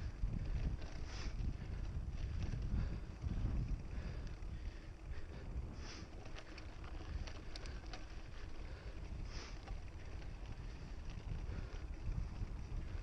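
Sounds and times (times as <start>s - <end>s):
mountain bike rumbling on trail: 0.0s - 13.0s
wind buffeting microphone: 0.0s - 13.0s.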